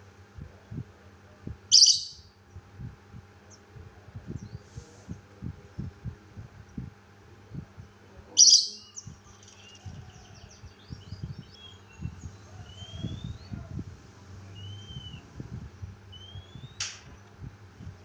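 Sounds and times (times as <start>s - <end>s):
songbird chirping and whistling: 1.7s - 2.3s, 8.4s - 13.8s, 14.4s - 17.2s.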